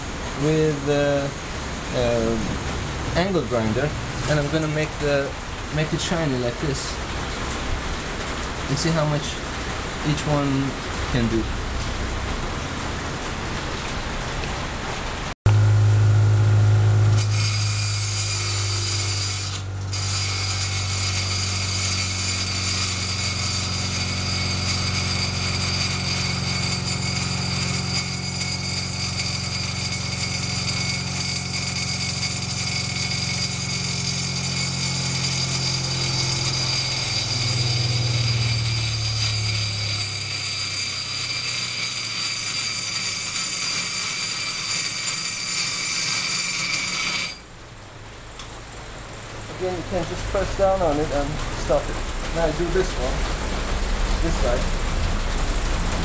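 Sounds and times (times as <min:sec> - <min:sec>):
bench grinder motor hum: 0:15.5 - 0:47.4
grinding wheel on metal bar: 0:15.6 - 0:47.5.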